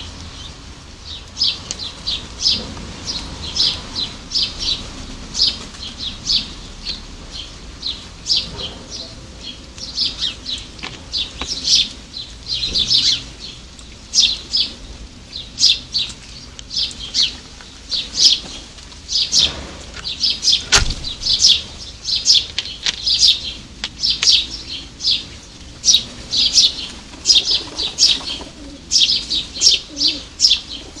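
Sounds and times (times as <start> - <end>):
small birds chirping: 0.0 - 31.0
loud knock: 20.7 - 21.2.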